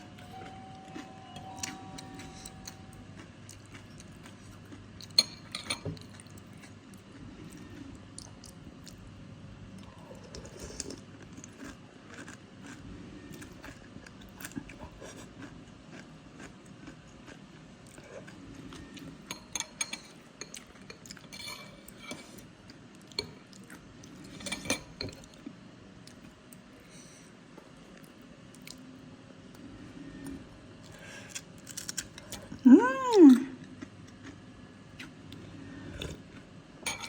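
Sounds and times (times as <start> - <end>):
cutlery clinking against a bowl: 5.0 - 6.3, 19.2 - 22.5, 24.2 - 25.4.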